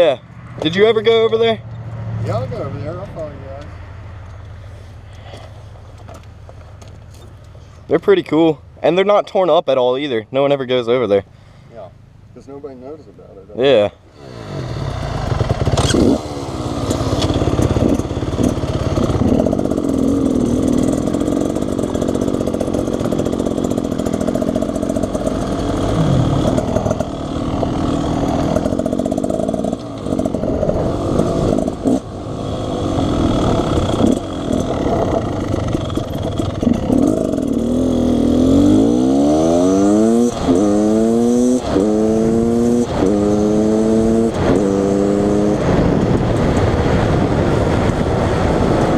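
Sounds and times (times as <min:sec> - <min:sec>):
dirt bike engine revving: 0:14.1 - 0:46.8.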